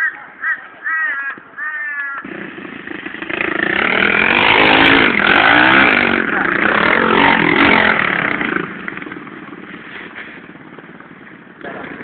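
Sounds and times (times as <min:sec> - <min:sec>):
bird harsh calls: 0:00.0 - 0:02.3
small motorcycle engine: 0:02.2 - 0:12.0.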